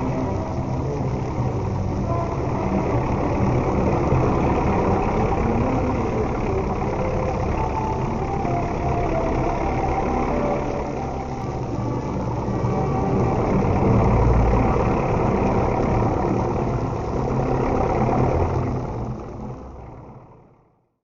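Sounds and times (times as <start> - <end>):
low mechanical rumble: 0.0 - 20.8.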